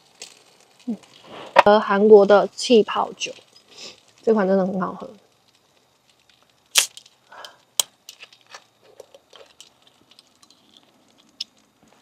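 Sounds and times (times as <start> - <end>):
light taps and crinkling: 0.0 - 1.8, 5.2 - 12.0.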